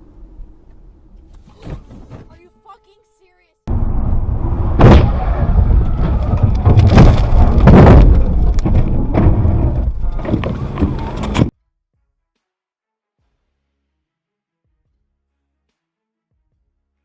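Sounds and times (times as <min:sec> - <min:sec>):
loud car rumble: 0:03.7 - 0:11.5.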